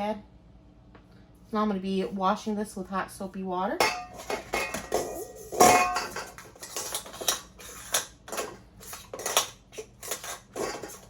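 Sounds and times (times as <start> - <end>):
metal parts clattering: 4.0 - 11.0.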